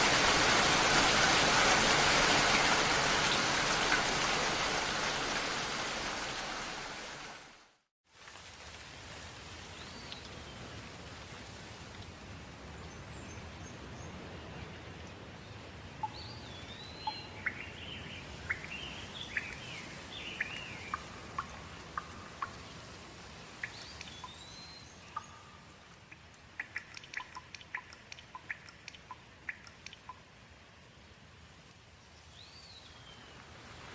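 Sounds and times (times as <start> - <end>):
water drips ticking: 0.0 - 5.5, 16.0 - 30.4
rain hiss: 0.0 - 33.9.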